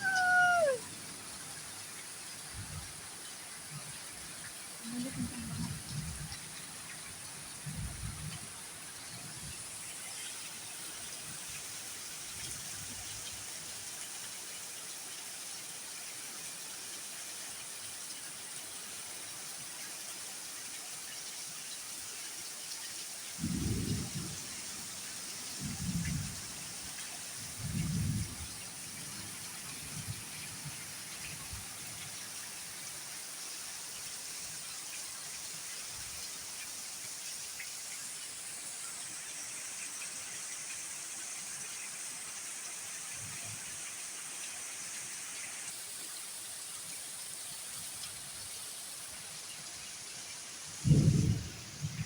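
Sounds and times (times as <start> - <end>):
rain hissing: 0.0 - 14.6, 22.4 - 52.0
wind: 0.0 - 52.0
low thunder rumbles: 5.0 - 6.4, 23.4 - 24.6, 25.6 - 26.6, 27.5 - 30.3, 50.8 - 52.0.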